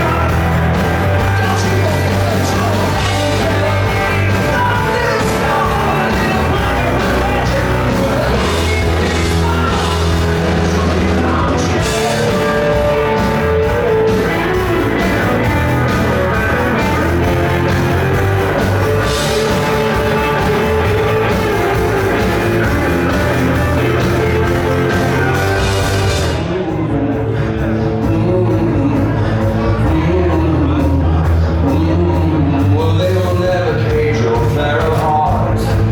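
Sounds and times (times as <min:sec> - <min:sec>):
rock band playing live: 0:00.0 - 0:35.9.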